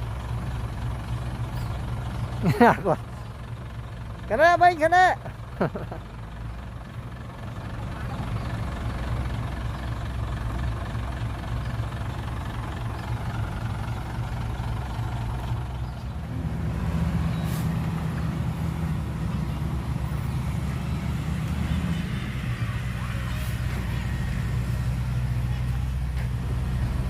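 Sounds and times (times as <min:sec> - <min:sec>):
heavy diesel engine running: 0:00.0 - 0:27.0
brief hiss: 0:17.4 - 0:17.8.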